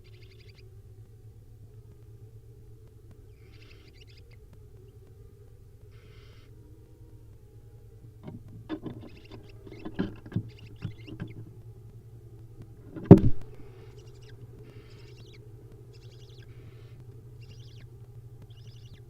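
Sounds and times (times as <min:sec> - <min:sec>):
owl nestlings hissing: 0:00.0 - 0:01.1, 0:01.9 - 0:19.0
steady low hum: 0:00.0 - 0:19.0
heavy thump: 0:12.8 - 0:13.7.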